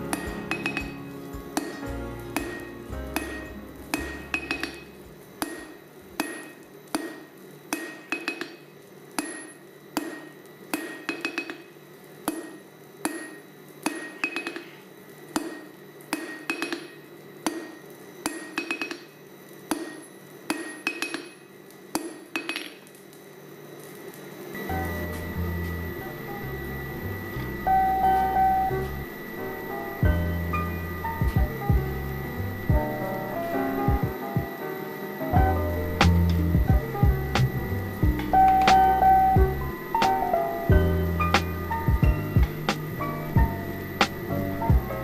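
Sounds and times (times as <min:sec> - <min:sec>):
hammer striking steel on anvil: 0:00.0 - 0:14.8, 0:15.4 - 0:22.8.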